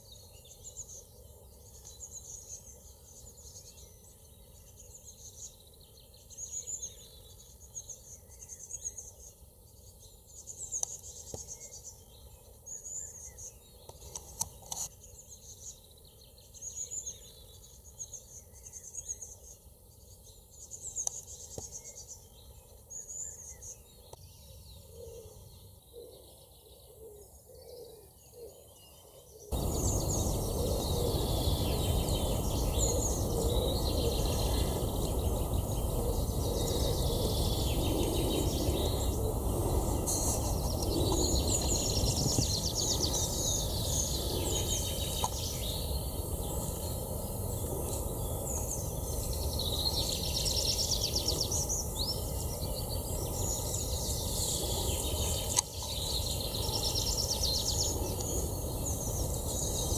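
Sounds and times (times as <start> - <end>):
small birds chirping: 0.0 - 59.9
steady rushing noise: 29.6 - 59.9.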